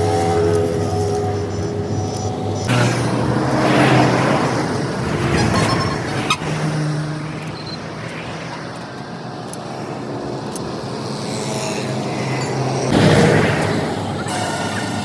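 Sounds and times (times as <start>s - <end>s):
vehicle engine humming: 0.0s - 15.0s
vehicle passing rush: 0.0s - 15.0s.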